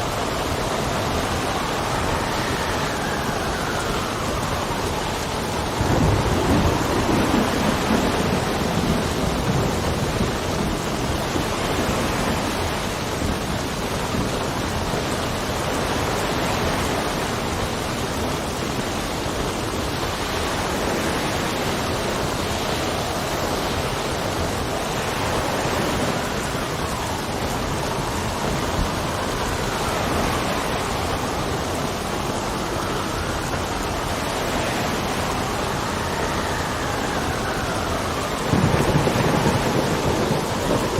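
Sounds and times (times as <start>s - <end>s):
gusting wind whistling: 0.0s - 40.9s
heavy rain: 0.0s - 40.9s
low thunder rumble: 0.0s - 40.9s.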